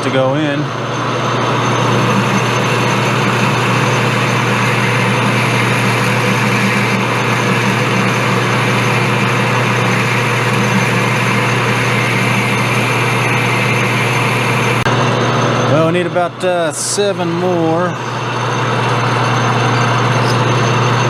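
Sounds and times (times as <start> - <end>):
metal lathe running: 0.0 - 21.0.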